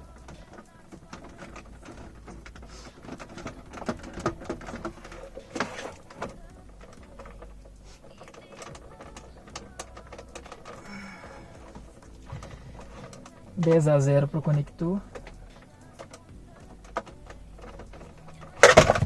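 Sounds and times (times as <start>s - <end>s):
short plastic scrape: 5.3s - 6.2s.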